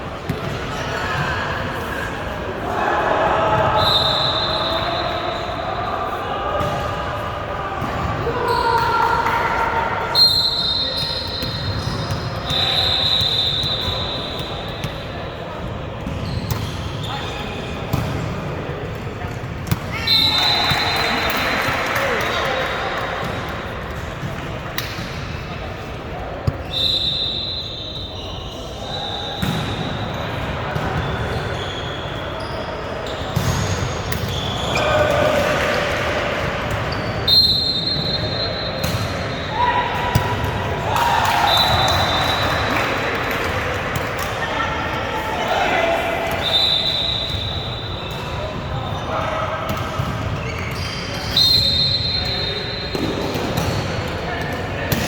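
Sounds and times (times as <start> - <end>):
echoing hall noise: 0.0 - 16.0, 16.7 - 55.0
sneaker squeaks on court: 10.6 - 15.0, 30.8 - 35.1, 49.7 - 53.8.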